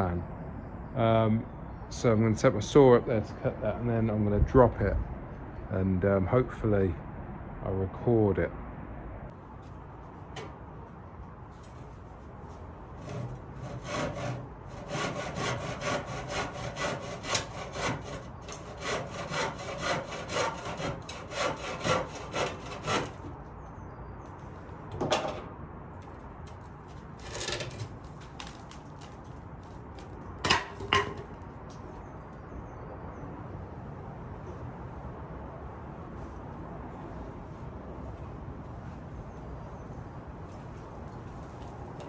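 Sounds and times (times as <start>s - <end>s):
short scrapes and knocks: 11.6s - 23.4s, 26.5s - 29.3s
hand saw cutting: 13.0s - 23.4s.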